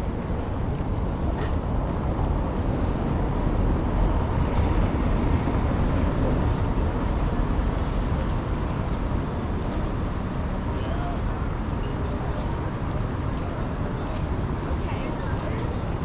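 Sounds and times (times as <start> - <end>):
wind buffeting microphone: 0.0 - 10.7
outdoor city noise: 0.0 - 16.0.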